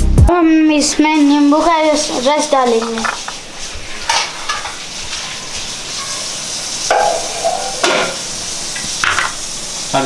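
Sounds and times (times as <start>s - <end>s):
food sizzling in a wok: 0.6s - 10.0s
metal spatula scraping wok: 3.0s - 6.3s, 6.9s - 8.2s.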